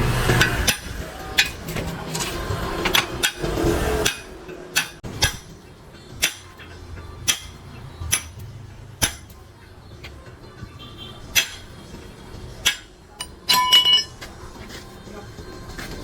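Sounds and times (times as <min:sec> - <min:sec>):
hammer tapping on metal: 0:02.8 - 0:10.2, 0:11.3 - 0:11.8, 0:12.6 - 0:14.3.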